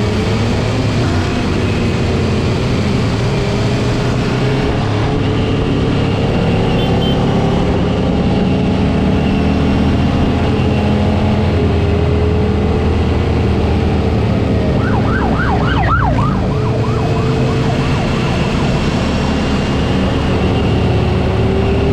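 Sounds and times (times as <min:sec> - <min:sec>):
motorcycle engines running: 0:00.0 - 0:21.9
police siren fast yelp: 0:14.6 - 0:20.0.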